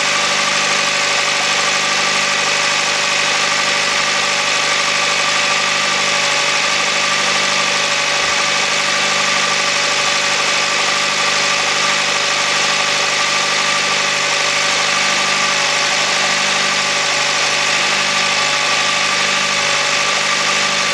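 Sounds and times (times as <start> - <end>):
car engine idling: 7.8 - 20.9.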